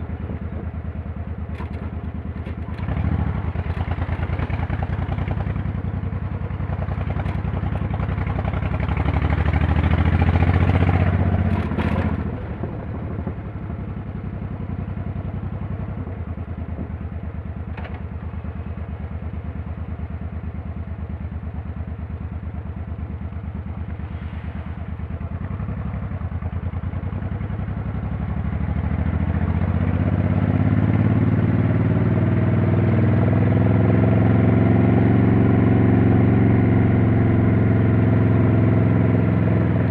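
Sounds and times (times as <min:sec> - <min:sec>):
motorcycle engine revving: 0:01.5 - 0:12.9, 0:24.2 - 0:39.9.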